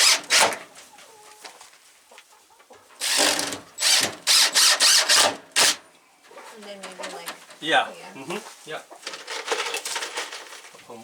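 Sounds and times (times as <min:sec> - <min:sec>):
power drill bursts: 0:00.0 - 0:00.6, 0:03.0 - 0:05.8
chicken clucking: 0:00.8 - 0:03.0, 0:06.0 - 0:07.5.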